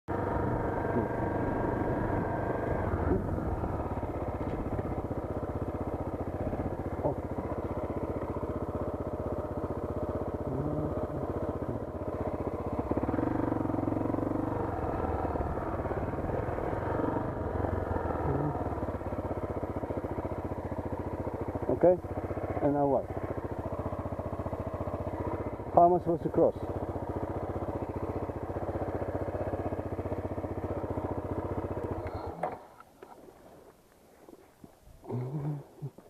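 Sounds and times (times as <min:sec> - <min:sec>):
motorcycle engine running: 0:00.1 - 0:36.0.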